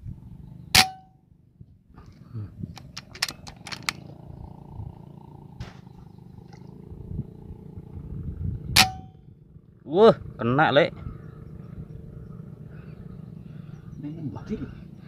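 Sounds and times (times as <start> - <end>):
sharp metallic clicks: 2.7 - 4.1
strong wind on microphone: 6.8 - 9.6.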